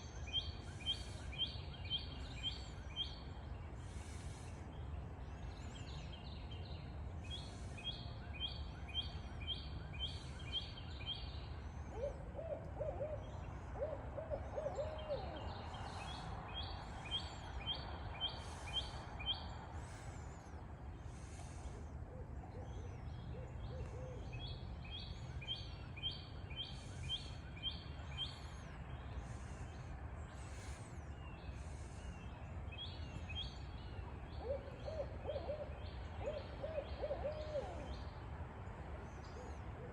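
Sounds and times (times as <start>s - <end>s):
owls hooting: 11.9s - 16.0s.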